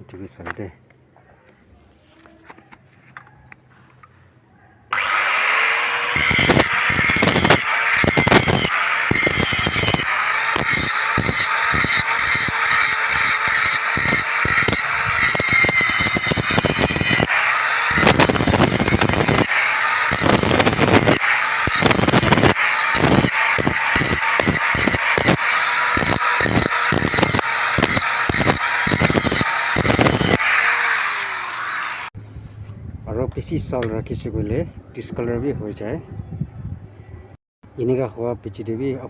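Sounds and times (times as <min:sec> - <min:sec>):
electric polishing machine spinning: 0:05.0 - 0:32.1.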